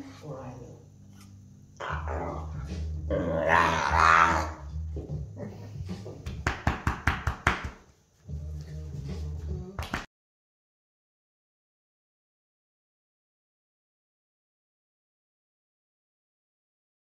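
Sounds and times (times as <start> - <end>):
dog growling: 1.8 - 6.0.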